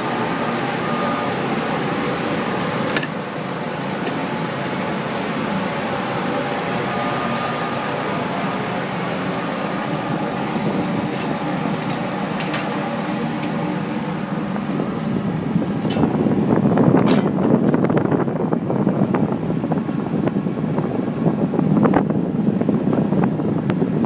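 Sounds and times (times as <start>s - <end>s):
machinery hum with tones: 0.0s - 24.0s.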